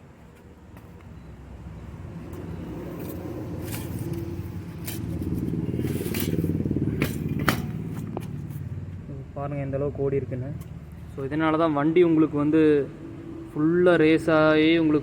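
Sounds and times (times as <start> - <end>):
vehicle engine running: 1.6 - 11.1
metallic clinks and scrapes: 2.9 - 8.7.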